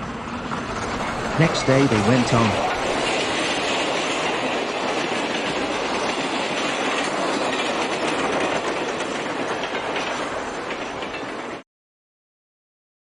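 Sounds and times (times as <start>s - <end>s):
train rumbling on track: 0.0s - 11.6s.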